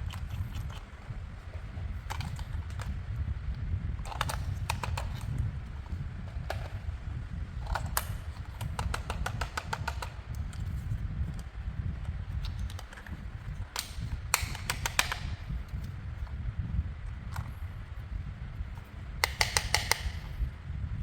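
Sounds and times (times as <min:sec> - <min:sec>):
steady low hum: 0:00.0 - 0:21.0
rapid sharp clicks: 0:07.7 - 0:10.4, 0:13.8 - 0:15.4, 0:19.2 - 0:20.3.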